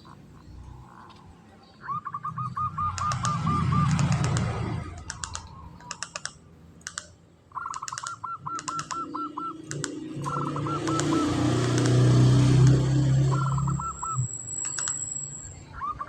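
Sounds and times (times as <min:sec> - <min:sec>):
dove calling: 0:00.0 - 0:16.0
sharp clicking ticks: 0:02.9 - 0:15.3.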